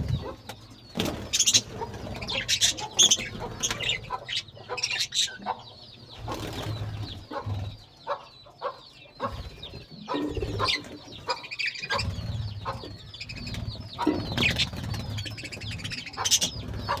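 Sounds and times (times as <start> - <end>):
wings flapping: 0.0 - 4.0, 6.2 - 7.7, 11.9 - 17.0
birds chirping: 0.0 - 17.0.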